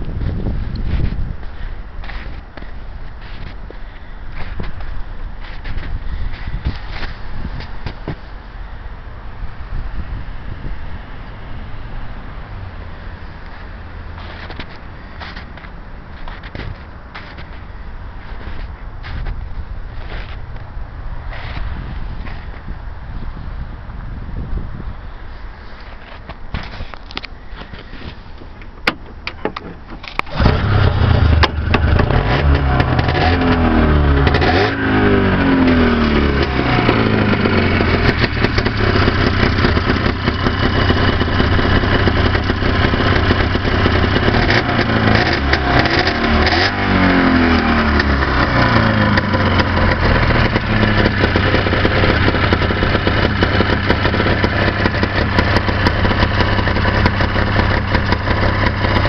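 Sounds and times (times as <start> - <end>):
snowmobile engine revving and idling: 30.4 - 59.0.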